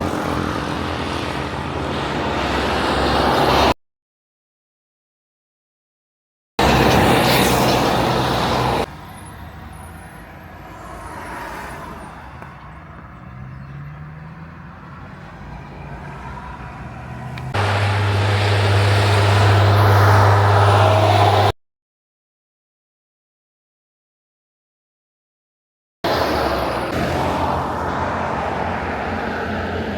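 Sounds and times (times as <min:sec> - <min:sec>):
truck diesel engines running: 0:00.0 - 0:03.7, 0:06.6 - 0:21.5, 0:26.1 - 0:29.9.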